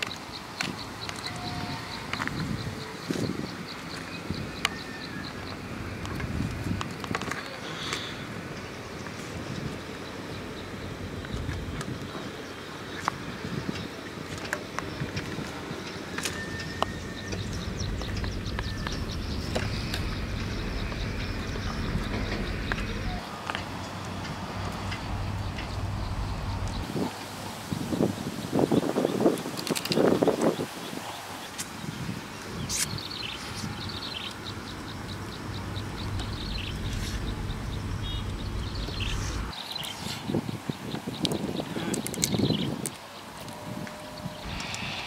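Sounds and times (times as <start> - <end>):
bird chirping: 0.0 - 5.7, 14.6 - 26.9, 32.6 - 43.3
low steady rumble: 16.6 - 26.9, 34.4 - 39.5.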